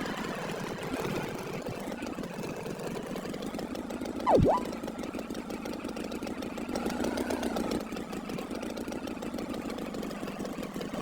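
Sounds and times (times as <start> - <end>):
engine idling with fast chugging: 5.2 - 11.0.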